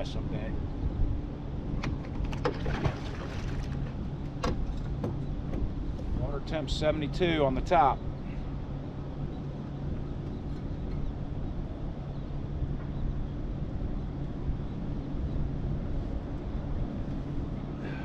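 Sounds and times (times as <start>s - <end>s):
wind: 0.0s - 18.0s
boat motor humming: 0.6s - 18.0s
water noise: 2.2s - 4.2s.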